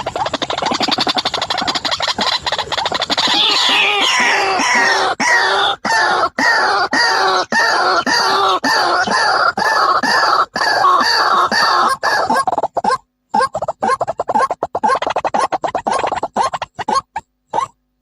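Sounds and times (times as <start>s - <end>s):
waterhen calling: 0.0s - 17.8s.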